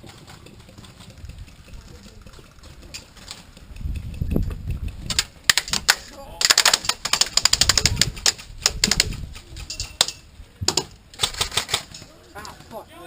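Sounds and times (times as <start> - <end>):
wind on microphone: 1.0 - 11.5
airsoft gun bursts: 5.2 - 9.7.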